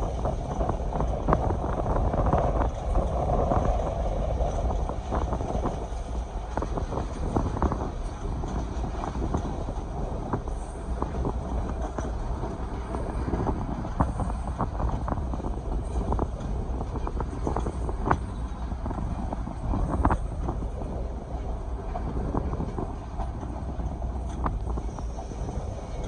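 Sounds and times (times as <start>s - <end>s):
train rumbling on track: 0.0s - 26.0s
wheels clicking and knocking: 0.0s - 26.0s.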